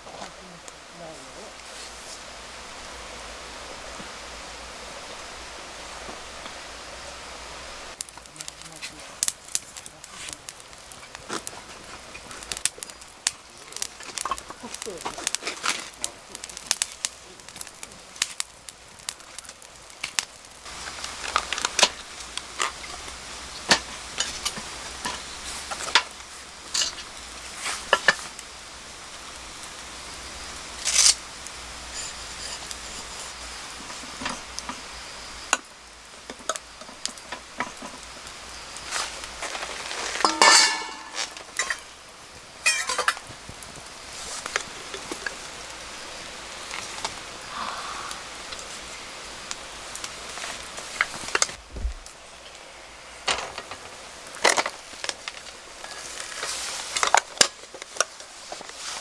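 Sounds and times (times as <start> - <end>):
food sizzling in a pan: 0.0 - 59.0
utensils clinking against pan: 40.1 - 41.9, 42.6 - 43.3.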